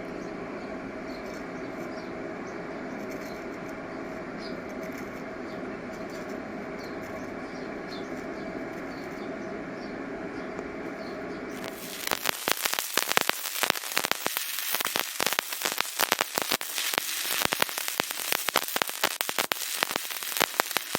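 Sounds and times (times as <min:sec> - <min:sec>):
faint steady hum: 0:00.0 - 0:20.9
welding crackles: 0:11.5 - 0:20.9
welding arc hissing: 0:11.6 - 0:20.9.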